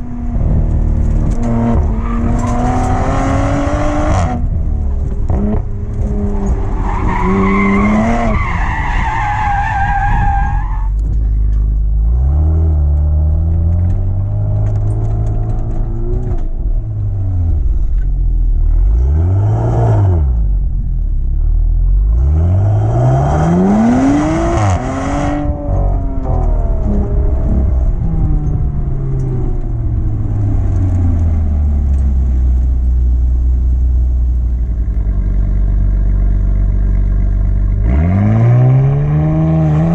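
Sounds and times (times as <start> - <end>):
race car engine revving: 0.0 - 10.3, 22.0 - 39.9.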